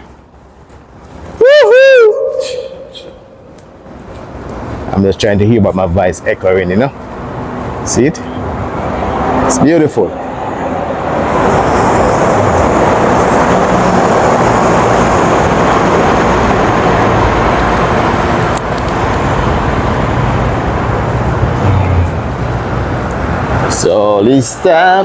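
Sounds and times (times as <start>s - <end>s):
road traffic rumble: 0.0s - 25.0s
low hum: 1.9s - 4.4s.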